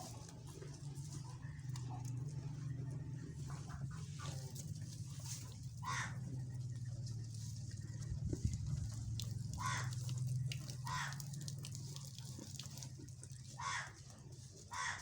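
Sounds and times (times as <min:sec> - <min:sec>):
harsh animal calls: 0:05.8 - 0:06.3, 0:09.5 - 0:10.1, 0:10.8 - 0:11.4, 0:13.6 - 0:14.0, 0:14.7 - 0:15.0.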